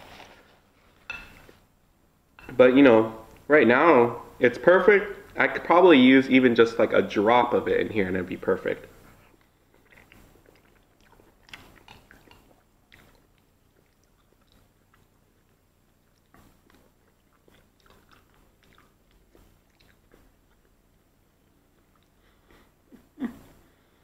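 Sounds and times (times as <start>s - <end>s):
man chewing with wet smacks: 8.7s - 23.7s.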